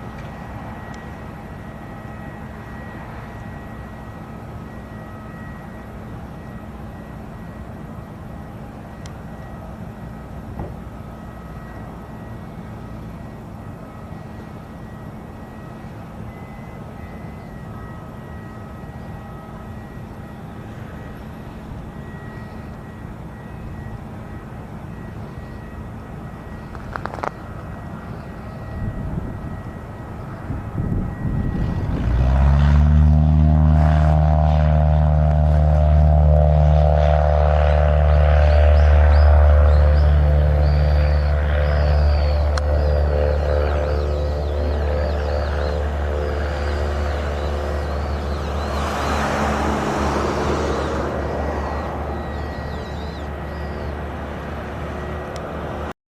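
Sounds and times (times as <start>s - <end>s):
distant propeller plane drone: 0.0s - 56.0s.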